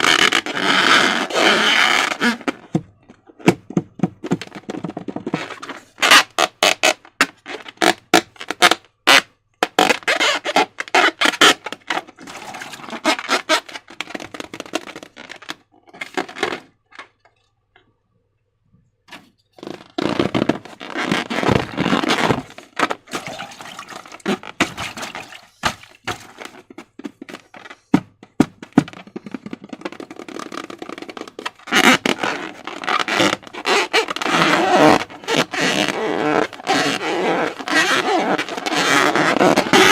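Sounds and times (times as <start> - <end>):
slime squelching by hand: 23.1 - 26.3.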